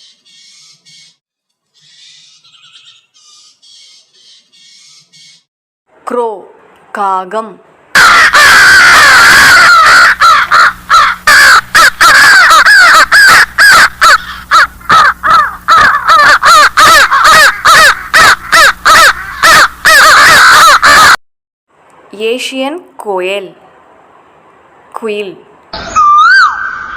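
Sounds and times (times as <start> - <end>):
crows cawing: 8.0 - 21.1.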